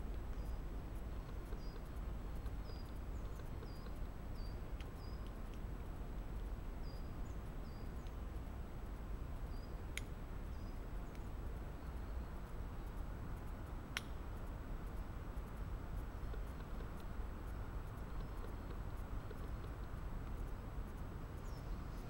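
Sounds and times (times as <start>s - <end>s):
small bird chirping: 0.3s - 5.4s, 17.9s - 20.7s, 21.4s - 22.0s.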